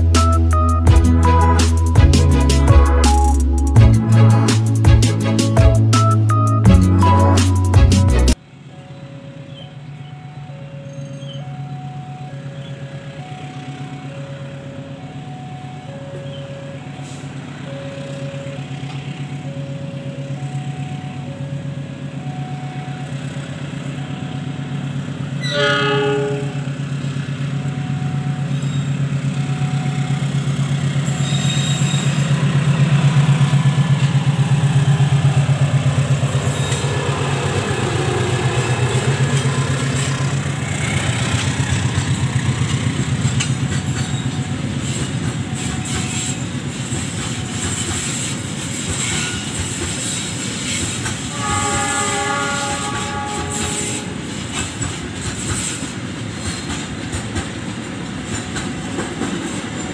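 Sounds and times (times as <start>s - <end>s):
high-pitched tone: 0.0s - 46.6s
locomotive engine running: 0.0s - 59.9s
train wheels clacking over rails: 30.3s - 59.9s.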